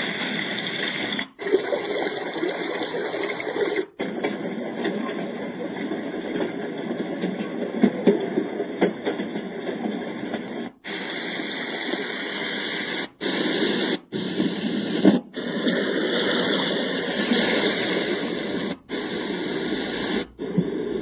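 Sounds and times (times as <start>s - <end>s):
white noise machine hiss: 10.1s - 21.0s.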